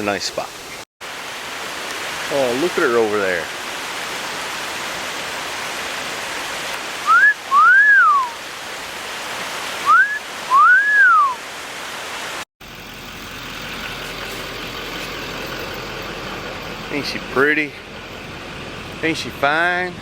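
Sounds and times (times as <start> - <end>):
creek rushing: 0.0 - 12.5, 13.3 - 20.0
man wolf-whistling: 7.0 - 8.4, 9.8 - 11.4.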